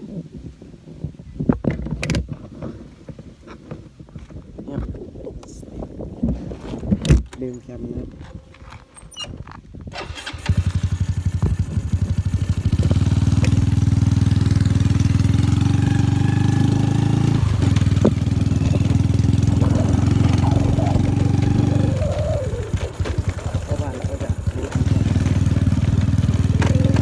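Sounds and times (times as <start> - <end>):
motorcycle engine starting and idling: 9.9 - 27.0.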